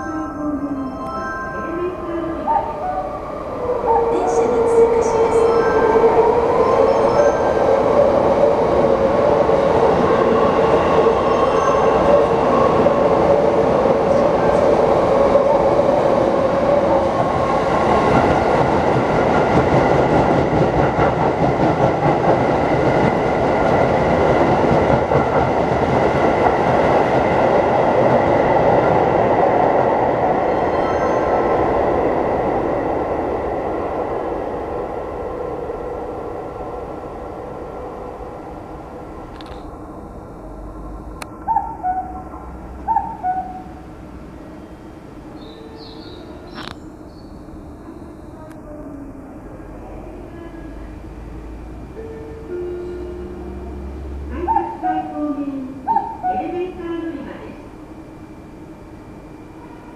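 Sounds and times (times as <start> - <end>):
train whine: 0.0 - 59.9
train wheels clattering on rails: 17.2 - 29.1.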